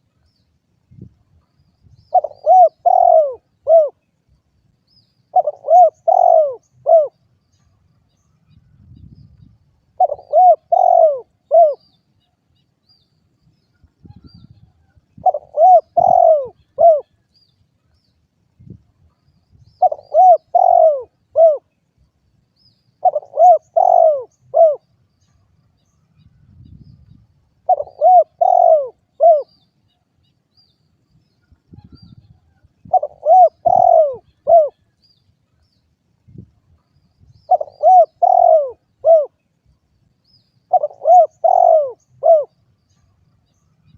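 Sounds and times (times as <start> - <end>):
dove cooing: 2.1 - 4.0, 5.3 - 7.2, 10.0 - 11.8, 15.2 - 17.2, 19.8 - 21.7, 23.0 - 24.9, 27.6 - 29.6, 32.8 - 34.9, 37.5 - 39.4, 40.7 - 42.6.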